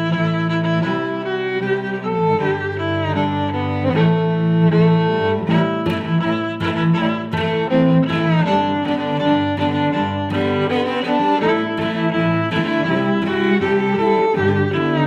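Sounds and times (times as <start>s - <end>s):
violin and cello music: 0.0s - 15.0s.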